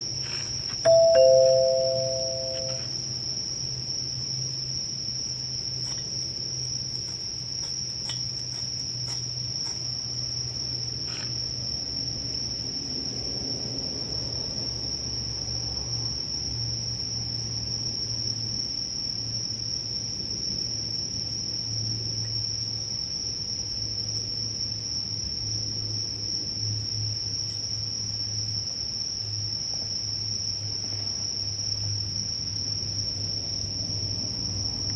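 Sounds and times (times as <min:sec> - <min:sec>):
crickets trilling: 0:00.0 - 0:34.9
low hum: 0:00.9 - 0:02.9
two-note chime: 0:00.9 - 0:02.9.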